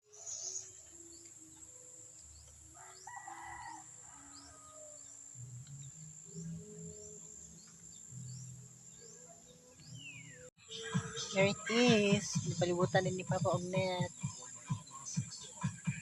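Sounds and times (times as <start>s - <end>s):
rooster crowing: 2.7s - 5.2s.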